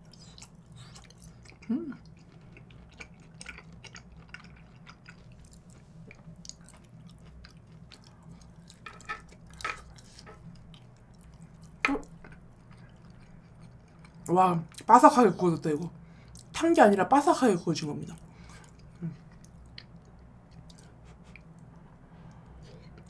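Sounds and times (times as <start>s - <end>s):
person chewing food: 0.0s - 14.9s, 16.1s - 16.5s, 18.2s - 23.0s
person humming briefly: 1.7s - 2.0s.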